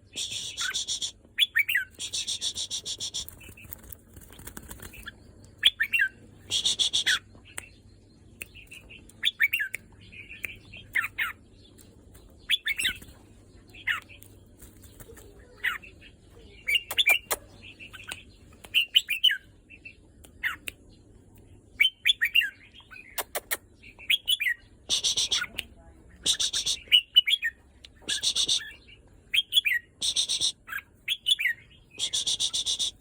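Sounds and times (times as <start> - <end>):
bird whistling song: 0.1 - 3.6, 5.6 - 7.3, 16.7 - 19.5, 21.8 - 25.6, 26.2 - 33.0
sharp clicks: 23.2 - 23.6.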